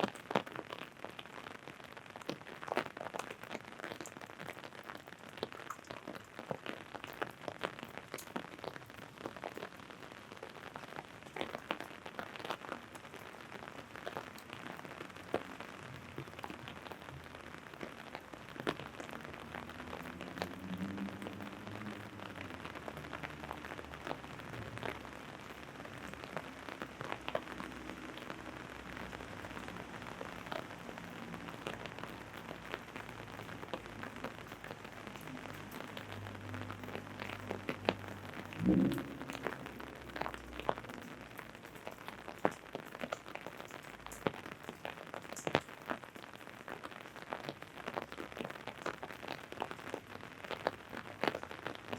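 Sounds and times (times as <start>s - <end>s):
rain drops tapping on umbrella: 0.0s - 51.9s
steady rain: 0.0s - 51.9s
faint low drone: 38.5s - 41.4s.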